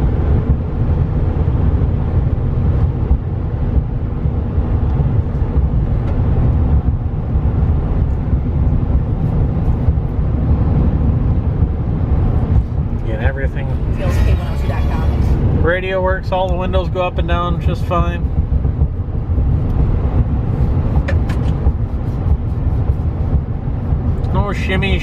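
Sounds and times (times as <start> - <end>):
engine and road noise in cab: 0.0 - 25.0.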